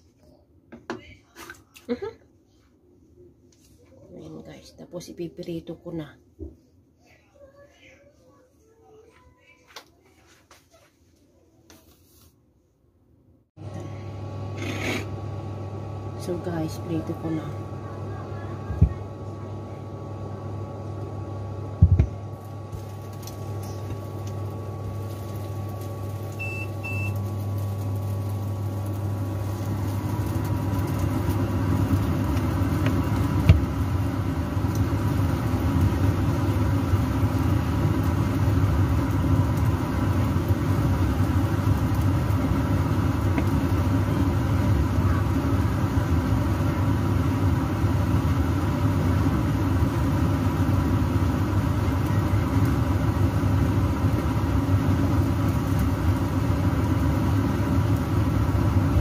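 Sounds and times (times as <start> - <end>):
rice cakes sizzling in oil: 20.4 - 59.0.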